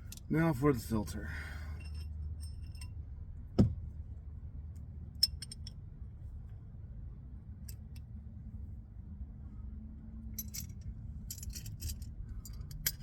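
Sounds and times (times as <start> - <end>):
dull thump: 3.6 - 3.9.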